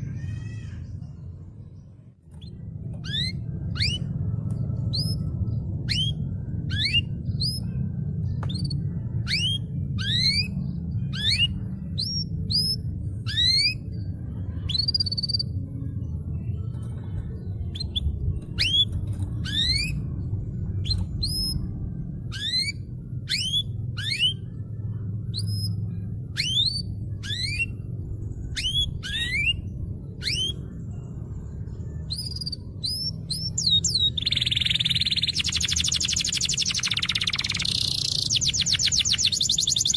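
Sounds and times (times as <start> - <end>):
steady low hum: 0.0 - 39.9
canary whistling: 3.0 - 4.1, 5.9 - 7.6, 8.6 - 13.8, 22.3 - 24.4, 25.4 - 27.8, 28.6 - 30.6, 32.1 - 39.9.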